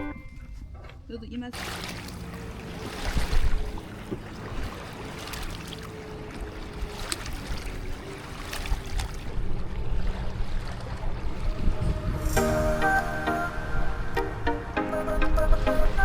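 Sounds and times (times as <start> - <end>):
water sloshing around a kayak: 0.0 - 12.2
wind gusts on microphone: 10.8 - 14.2.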